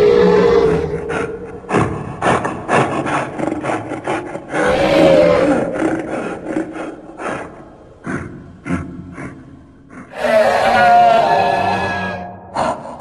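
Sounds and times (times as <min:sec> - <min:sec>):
creature wavering roar: 0:00.0 - 0:02.2, 0:04.5 - 0:07.2, 0:10.1 - 0:12.4.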